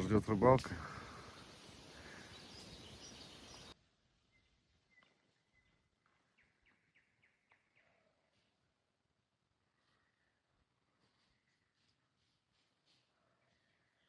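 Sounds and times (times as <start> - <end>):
soft bird chirps: 0.0 - 8.5
outdoor background: 0.0 - 14.0.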